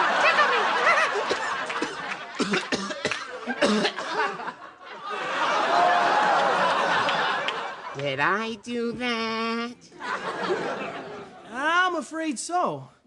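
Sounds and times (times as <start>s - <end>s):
audience laughing: 0.0s - 8.1s, 9.9s - 11.5s
people coughing: 0.4s - 4.7s.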